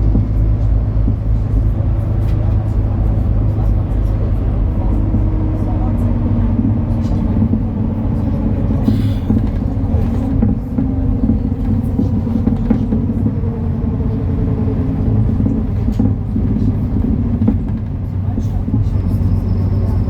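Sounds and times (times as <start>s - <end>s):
bus diesel engine rumble: 0.0s - 20.0s
engine whine: 0.0s - 20.0s.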